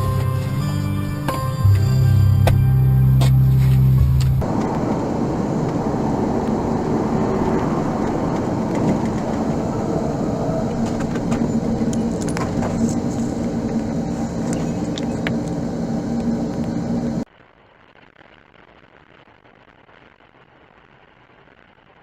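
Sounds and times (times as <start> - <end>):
road noise: 0.0 - 17.2
vehicle engine hum: 0.0 - 17.2.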